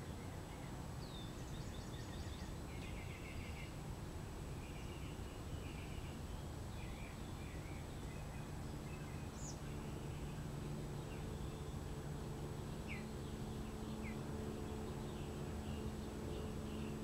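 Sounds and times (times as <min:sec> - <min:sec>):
steady low hum: 0:00.0 - 0:17.0
bird chirps: 0:12.7 - 0:17.0.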